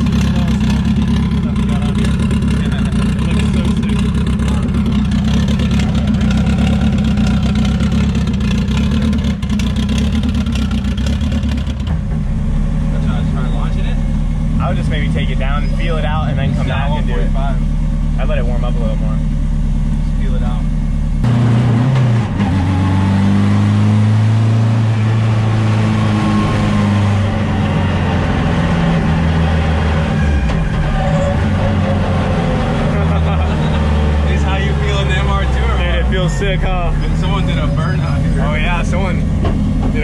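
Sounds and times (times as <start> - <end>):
loud rough car exhaust: 0.0 - 40.0.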